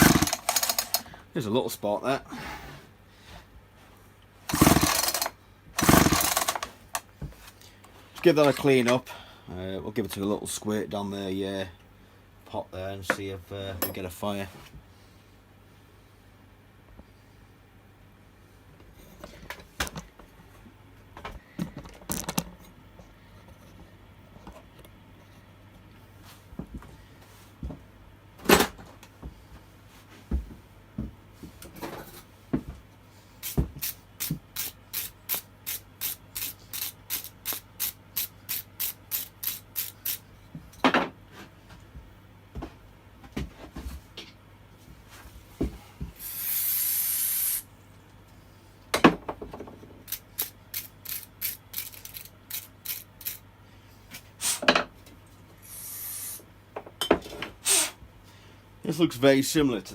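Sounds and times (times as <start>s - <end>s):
aerosol spray hiss: 46.2s - 47.6s, 55.6s - 56.4s.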